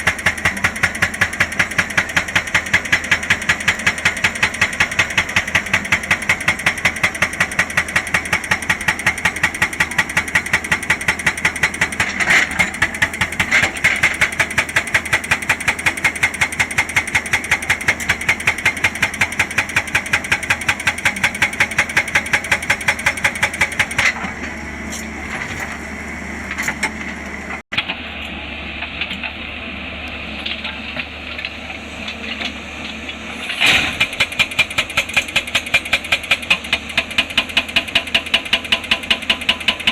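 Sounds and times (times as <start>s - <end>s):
hydraulic breaker hammering rock: 0.0s - 24.5s, 33.5s - 39.9s
excavator diesel engine running: 0.0s - 39.9s.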